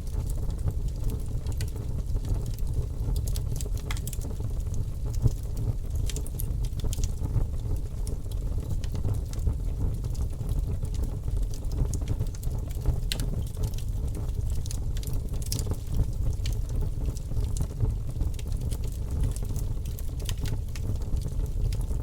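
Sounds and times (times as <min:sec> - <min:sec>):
low rumble of flames: 0:00.0 - 0:22.0
wood fire crackling and popping: 0:00.0 - 0:22.0.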